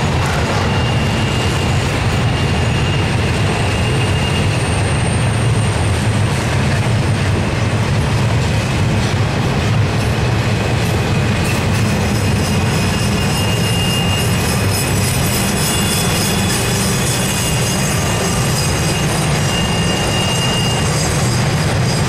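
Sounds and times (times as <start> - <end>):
high-pitched wheel squeals: 0.0 - 6.2, 10.7 - 22.0
steel wheels rumbling on rail: 0.0 - 22.0.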